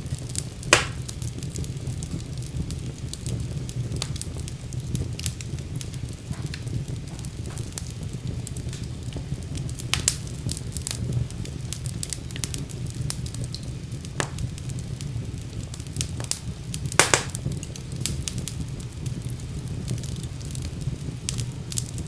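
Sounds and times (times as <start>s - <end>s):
fire crackling and popping: 0.0s - 22.0s.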